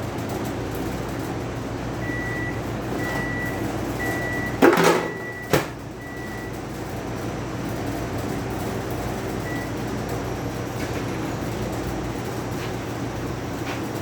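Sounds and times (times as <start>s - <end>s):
microwave oven beeping: 0.1s - 14.0s
microwave door clunk: 4.6s - 5.8s.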